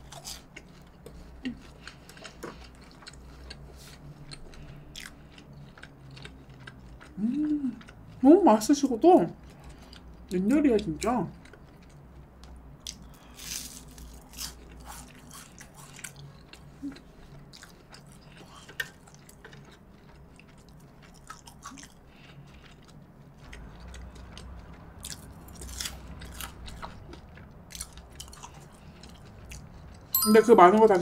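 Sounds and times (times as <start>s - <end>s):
chewing: 0.0s - 8.3s, 9.3s - 10.5s, 11.3s - 30.1s
crunching bites into fried crust: 12.4s - 16.7s, 17.3s - 30.0s.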